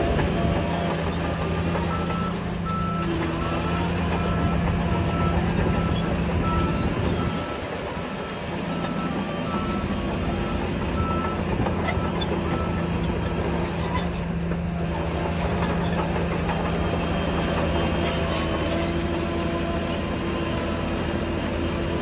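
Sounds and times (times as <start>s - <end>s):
diesel engine running: 0.0s - 22.0s
reversing alarm beeping: 1.6s - 13.5s.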